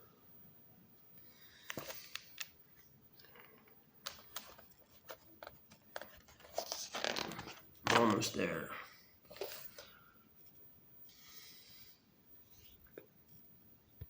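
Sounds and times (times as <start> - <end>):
book page rustling: 4.0 - 8.3.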